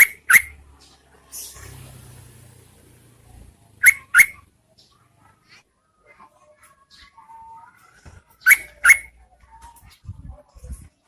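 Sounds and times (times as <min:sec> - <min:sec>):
bird call notes: 0:00.0 - 0:00.6, 0:03.8 - 0:04.4, 0:08.4 - 0:09.1.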